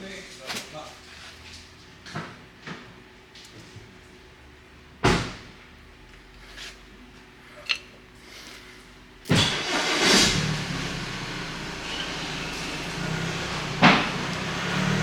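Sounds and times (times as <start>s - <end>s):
rough noisy clatter: 13.4s - 15.0s.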